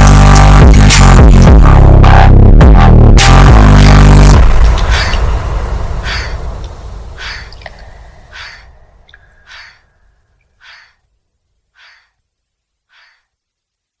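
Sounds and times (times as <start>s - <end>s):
electronic beat: 0.0s - 7.7s
breathy gasp sound: 7.7s - 10.3s.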